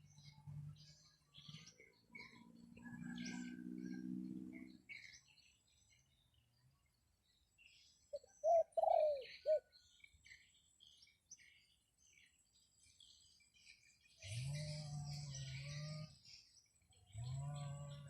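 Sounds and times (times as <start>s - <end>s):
small birds chirping: 0.0s - 18.0s
dove cooing: 8.1s - 9.6s.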